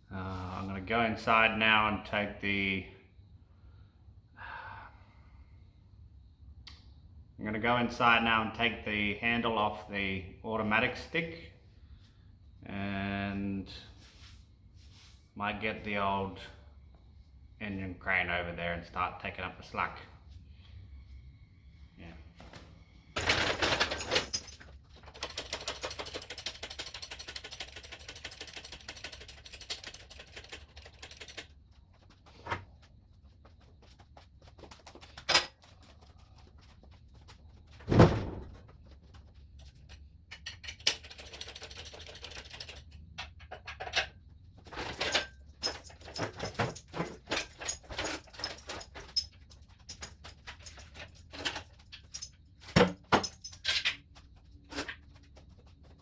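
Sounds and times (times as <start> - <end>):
metal clicks and clanks: 42.2 - 56.0.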